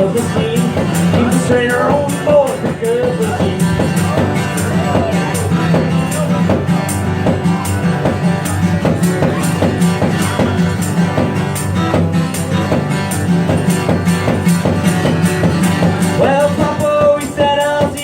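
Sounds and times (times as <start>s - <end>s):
electric guitar: 0.0s - 18.0s
live band instrumental: 0.0s - 18.0s.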